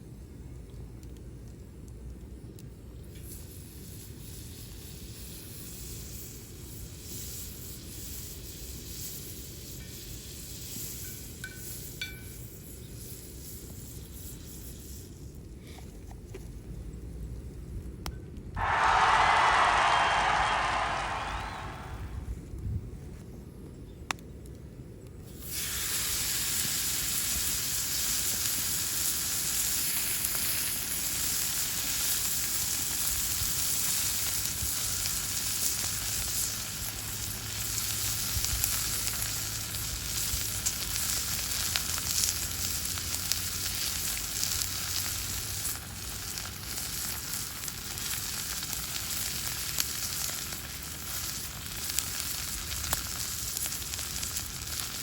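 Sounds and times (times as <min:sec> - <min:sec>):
steak sizzling with pops: 0:01.0 - 0:15.2, 0:25.2 - 0:55.0.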